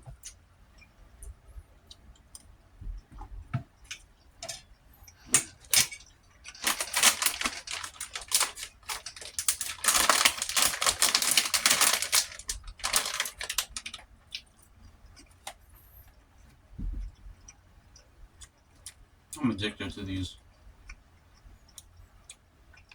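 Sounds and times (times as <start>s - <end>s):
chewing and crunching food: 0.0s - 19.4s, 20.4s - 22.9s
low thump: 16.8s - 17.1s.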